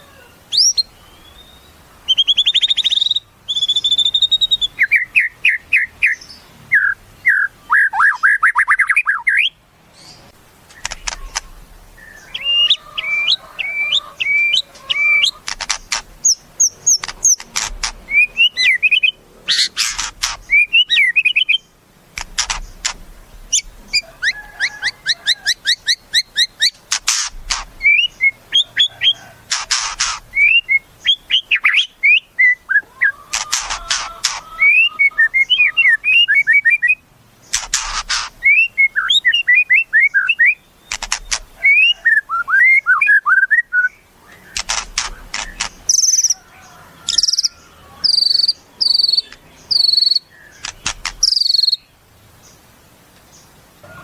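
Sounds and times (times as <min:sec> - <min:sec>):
bird singing whistled notes: 0:00.5 - 0:10.2, 0:12.0 - 0:15.4, 0:18.1 - 0:19.7, 0:20.4 - 0:21.7, 0:27.8 - 0:29.4, 0:30.0 - 0:33.2, 0:33.8 - 0:37.0, 0:38.1 - 0:51.9
bird rattling bursts: 0:14.8 - 0:18.2, 0:19.6 - 0:20.6, 0:22.1 - 0:23.8, 0:26.6 - 0:27.9, 0:29.3 - 0:30.4, 0:33.3 - 0:34.6, 0:37.5 - 0:38.4, 0:40.9 - 0:41.6, 0:44.5 - 0:46.3, 0:50.6 - 0:51.4.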